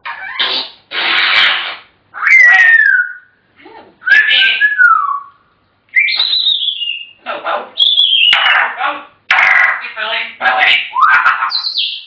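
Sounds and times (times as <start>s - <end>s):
parrot whistling: 1.0s - 3.4s, 4.0s - 7.2s, 7.8s - 8.7s, 10.7s - 12.0s.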